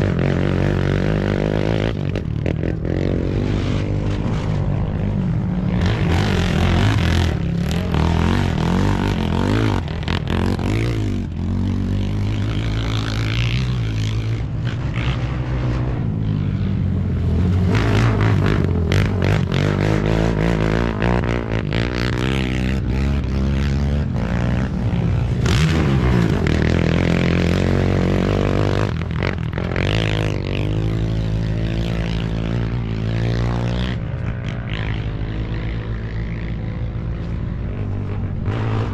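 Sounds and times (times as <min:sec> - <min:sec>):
motorcycle and quad engines revving: 0:00.0 - 0:38.9.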